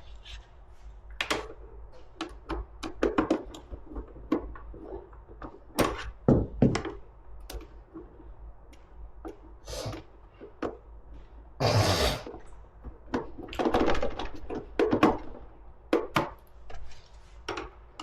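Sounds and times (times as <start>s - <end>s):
tools knocking on plastic: 1.4s - 7.8s.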